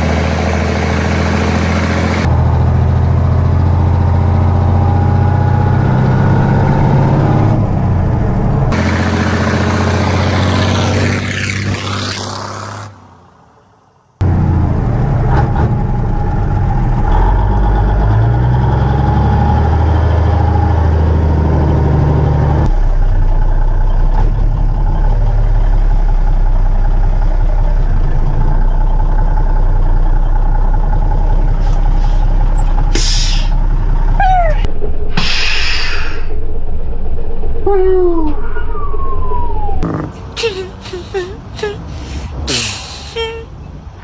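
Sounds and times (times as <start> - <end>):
diesel truck engine running: 0.0 - 11.2, 14.2 - 44.0
air hissing: 31.6 - 33.6, 35.1 - 36.3
brief squeaks: 31.6 - 33.6, 34.2 - 36.2.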